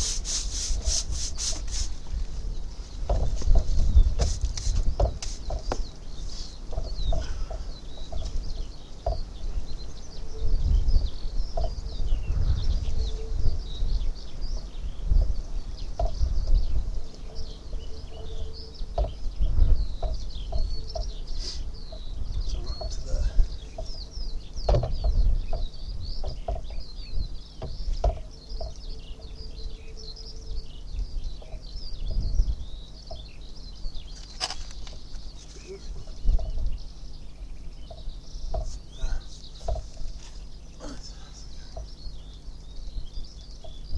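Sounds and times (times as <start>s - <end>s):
small birds chirping: 0.0s - 43.9s
short knocks: 3.0s - 5.9s, 6.7s - 9.4s, 24.6s - 26.8s, 27.6s - 28.8s, 37.9s - 40.1s
loud low rumbling: 5.8s - 34.1s.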